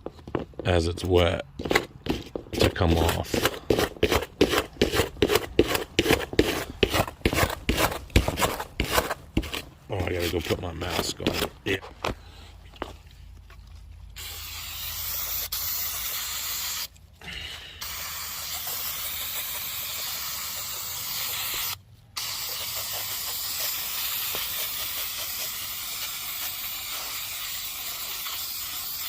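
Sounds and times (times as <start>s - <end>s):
aerosol can spraying: 14.2s - 16.9s, 17.8s - 29.0s.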